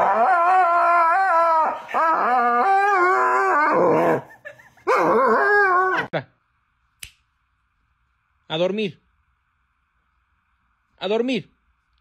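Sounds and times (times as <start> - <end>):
dog howling: 0.0 - 6.1.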